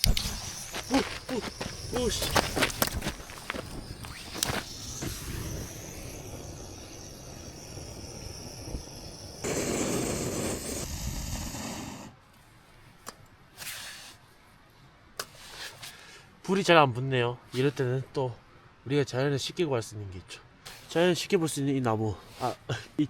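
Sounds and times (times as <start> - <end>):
sharp click: 0.0 - 0.5
gas hissing from canister: 0.0 - 12.2.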